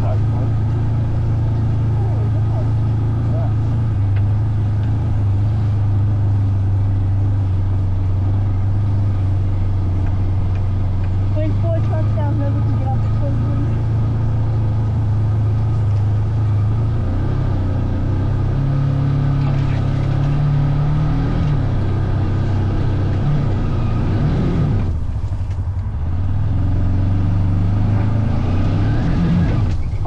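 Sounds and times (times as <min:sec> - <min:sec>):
off-road vehicle engine revving: 0:00.0 - 0:30.0.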